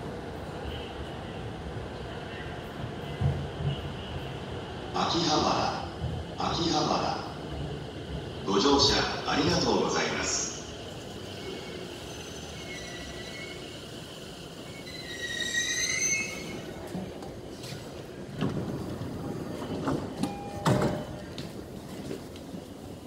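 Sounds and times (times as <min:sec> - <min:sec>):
train slowing to a stop: 0:00.0 - 0:23.0
brake squeal: 0:12.0 - 0:13.8, 0:14.7 - 0:16.6.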